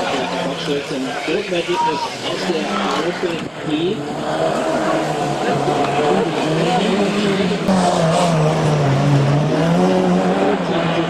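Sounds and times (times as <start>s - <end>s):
race car engine revving: 0.0s - 11.0s.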